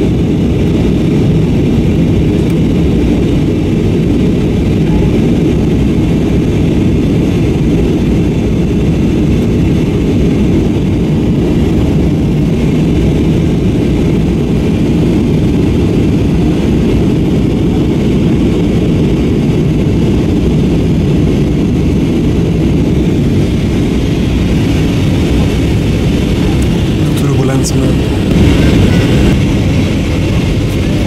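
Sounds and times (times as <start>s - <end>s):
airplane cabin engine roar: 0.0s - 31.0s.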